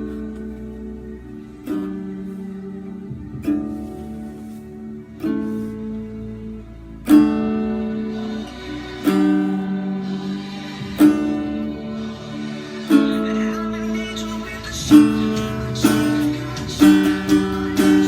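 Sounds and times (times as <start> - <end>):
acoustic guitar strumming chords: 7.0 - 18.0.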